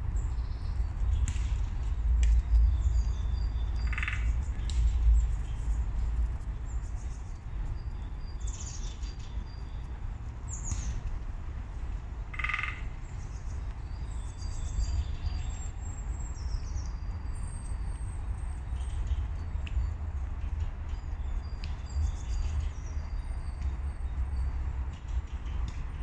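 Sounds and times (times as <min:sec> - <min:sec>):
steady low rumble: 0:00.0 - 0:26.0
small birds chirping: 0:00.1 - 0:11.2.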